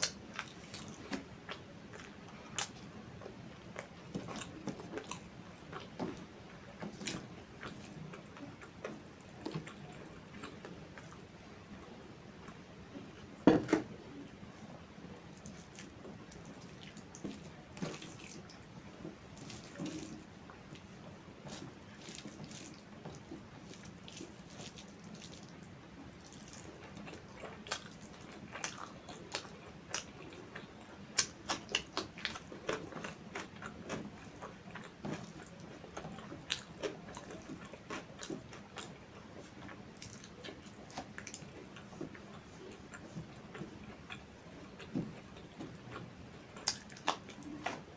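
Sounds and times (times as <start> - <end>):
person chewing food: 0.0 - 14.4, 15.3 - 47.9.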